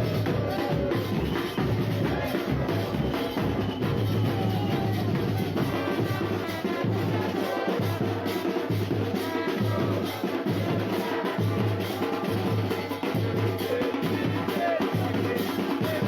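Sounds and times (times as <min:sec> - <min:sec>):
deep drumbeat: 0:00.0 - 0:09.1
drum band playing: 0:00.0 - 0:16.0.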